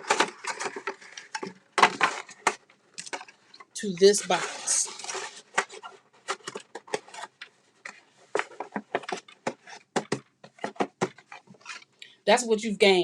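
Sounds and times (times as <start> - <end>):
paper rustling: 0.0 - 11.9
cardboard box tapping and clicking: 8.3 - 11.5.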